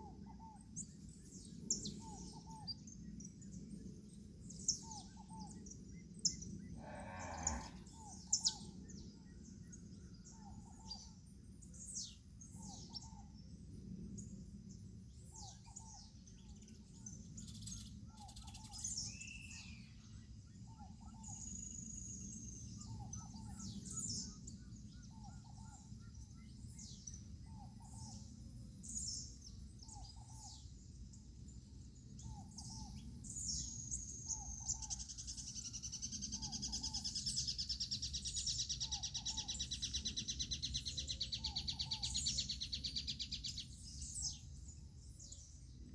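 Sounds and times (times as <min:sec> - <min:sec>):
small birds chirping: 0:20.6 - 0:45.6.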